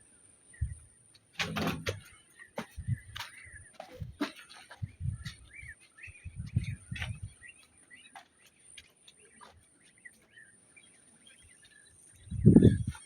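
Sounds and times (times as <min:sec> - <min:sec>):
small birds chirping: 0:00.4 - 0:13.0
dull low thumps: 0:01.6 - 0:07.5.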